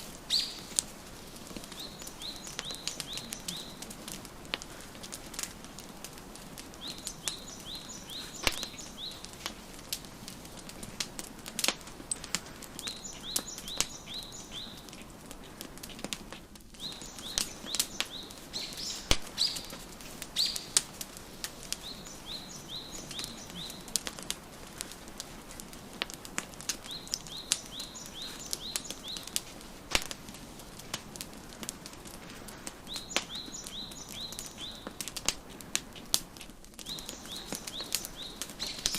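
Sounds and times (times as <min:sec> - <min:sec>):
wood fire crackling and popping: 0:00.0 - 0:38.9
songbird chirping: 0:00.2 - 0:04.6, 0:06.2 - 0:09.6, 0:12.7 - 0:15.6, 0:16.8 - 0:24.6, 0:26.8 - 0:30.2, 0:32.7 - 0:35.2, 0:36.8 - 0:38.9.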